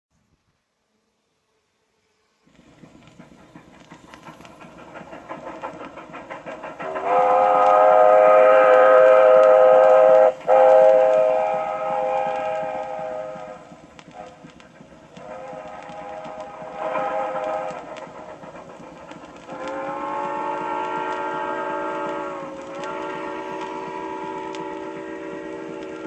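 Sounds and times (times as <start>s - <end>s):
train wheels clattering: 2.5s - 26.0s
loud train whistle chord: 6.8s - 14.3s, 15.2s - 17.9s, 19.5s - 26.0s.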